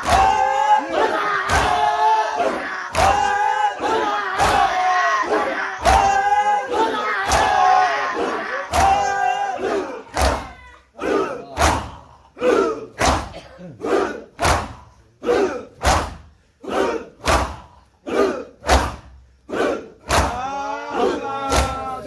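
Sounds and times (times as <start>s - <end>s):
group shouting: 0.0s - 22.0s.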